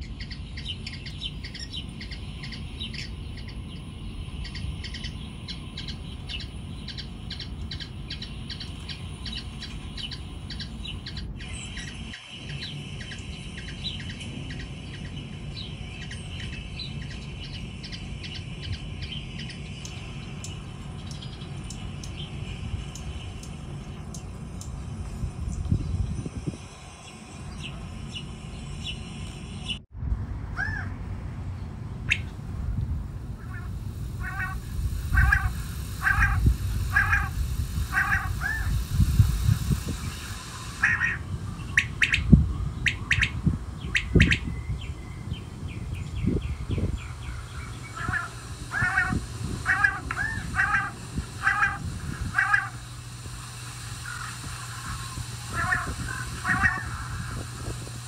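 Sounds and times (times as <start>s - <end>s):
birds squawking: 0.0s - 24.3s, 33.4s - 38.8s, 40.1s - 44.5s, 46.2s - 57.7s
low rumbling noise: 0.0s - 58.0s.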